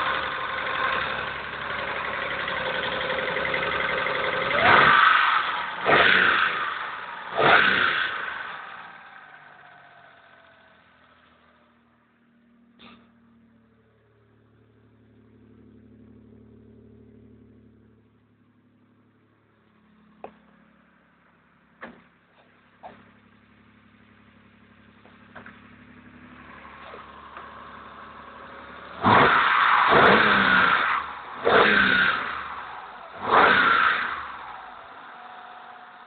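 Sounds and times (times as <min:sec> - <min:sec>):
car engine revving: 0:00.0 - 0:11.4, 0:22.7 - 0:36.0.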